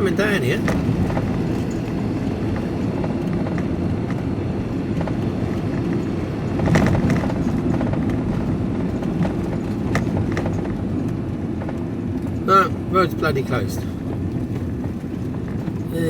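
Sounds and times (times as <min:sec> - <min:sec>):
van engine and road rumble: 0:00.0 - 0:16.0.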